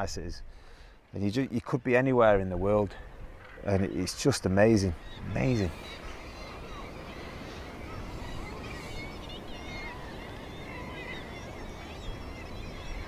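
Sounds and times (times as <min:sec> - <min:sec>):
seabirds calling harshly: 0:03.0 - 0:13.0.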